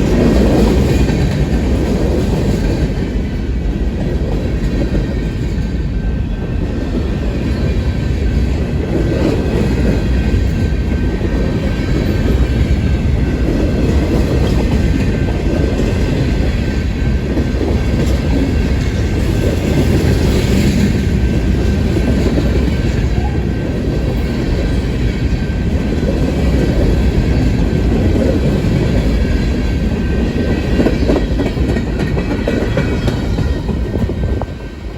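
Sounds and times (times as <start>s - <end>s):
train cars rumbling past: 0.0s - 34.9s.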